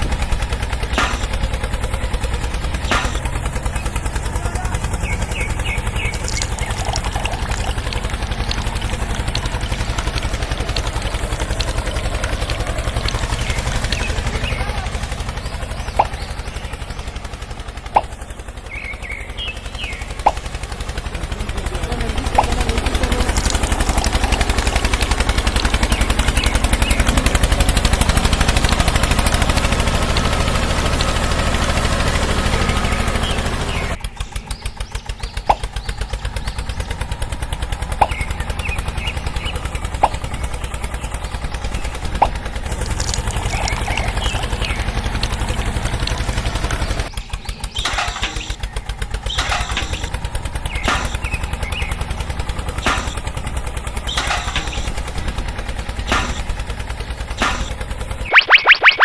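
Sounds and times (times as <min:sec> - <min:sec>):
small engine puttering: 0:00.0 - 0:59.0
sharp clicks: 0:00.9 - 0:01.6, 0:02.8 - 0:03.6, 0:05.0 - 0:16.8, 0:20.2 - 0:20.5, 0:22.0 - 0:31.4, 0:57.4 - 0:59.0.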